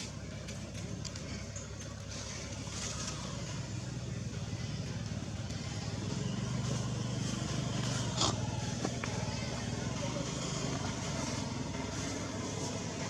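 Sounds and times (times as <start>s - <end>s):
motor engine humming: 0.0s - 13.0s.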